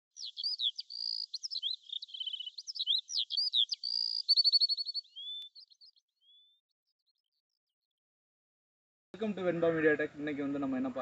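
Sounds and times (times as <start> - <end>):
songbird singing: 0.0 - 7.8.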